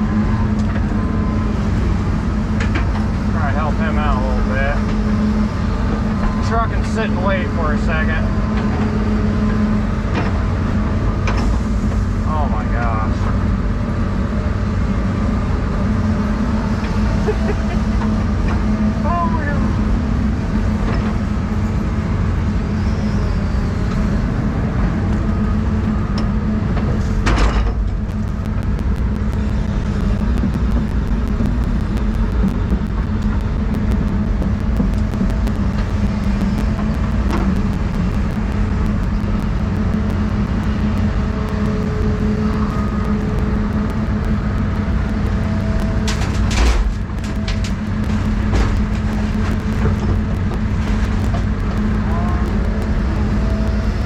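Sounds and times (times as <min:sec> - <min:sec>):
excavator diesel engine: 0:00.0 - 0:54.0
clicks: 0:27.3 - 0:54.0.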